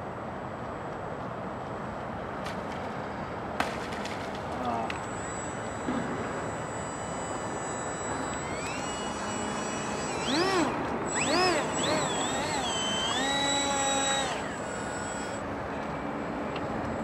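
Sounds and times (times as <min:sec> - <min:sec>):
electric motor and propeller whining: 0:04.3 - 0:17.0.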